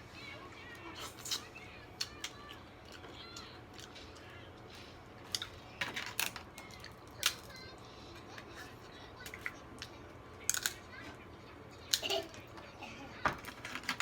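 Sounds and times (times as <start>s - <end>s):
shells cracking and clicking: 9.3s - 10.8s.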